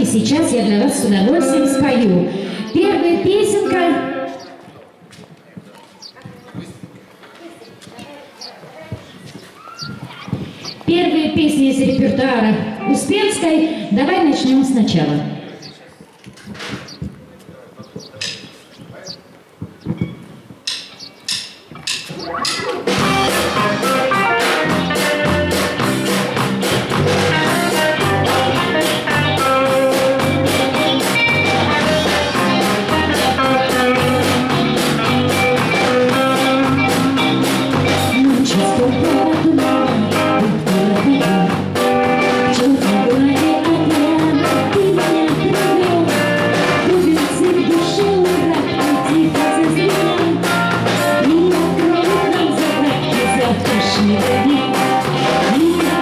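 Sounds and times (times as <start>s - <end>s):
guitar: 0.0s - 4.9s, 10.9s - 15.6s, 21.8s - 56.0s
steady drum beat: 20.6s - 56.0s
woman singing: 36.1s - 56.0s.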